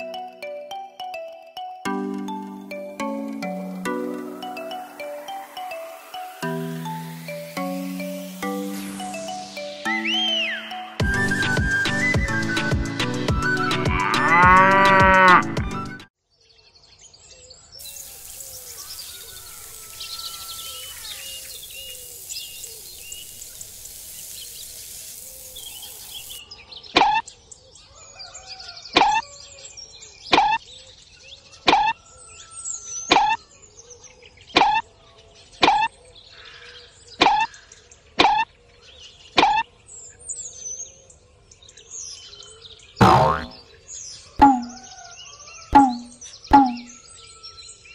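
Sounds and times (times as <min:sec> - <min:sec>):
musical jingle with chime: 0:00.0 - 0:11.3
birdsong: 0:16.3 - 0:47.9.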